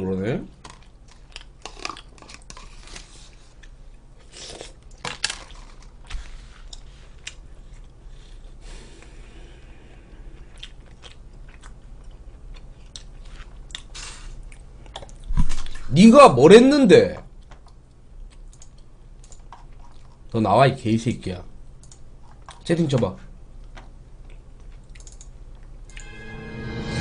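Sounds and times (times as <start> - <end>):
person chewing food: 0.7 - 9.2, 10.0 - 15.3, 17.4 - 20.3, 23.6 - 26.0.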